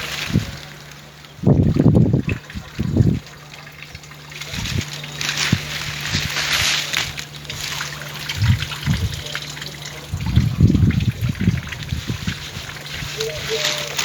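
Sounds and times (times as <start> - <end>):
water trickling and splashing: 0.0 - 14.0
low rumble: 4.0 - 13.3.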